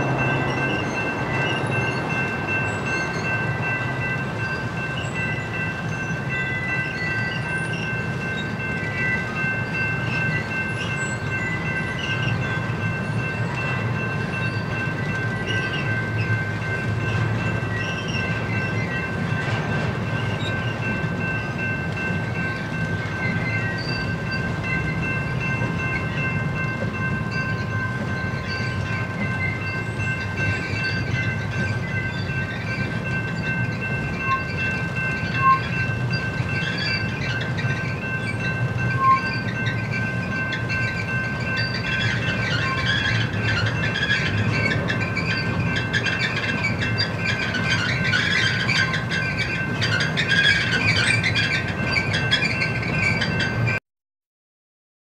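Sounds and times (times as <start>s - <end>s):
high-pitched ringing: 0.0s - 19.4s
steel wheels rumbling on rail: 0.0s - 53.8s.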